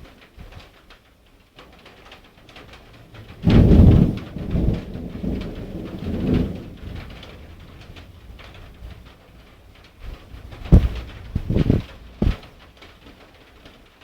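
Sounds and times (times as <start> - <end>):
rain falling: 0.0 - 14.0
thunderclap rumbling: 2.5 - 13.0.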